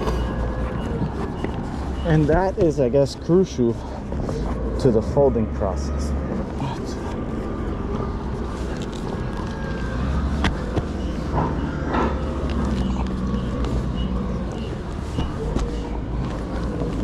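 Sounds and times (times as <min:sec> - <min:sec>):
heavy tarps rustling: 0:00.0 - 0:05.3
truck engine idling: 0:00.0 - 0:17.0.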